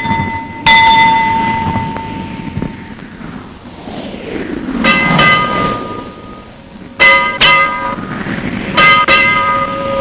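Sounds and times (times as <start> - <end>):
ship's bell ringing: 0.0 - 2.3
low rumbling background: 0.0 - 10.0.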